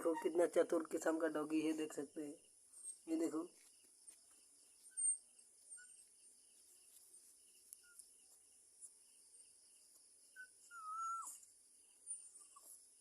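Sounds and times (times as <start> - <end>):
faint cricket chirping: 0.0 - 13.0
dog whining: 10.4 - 11.4.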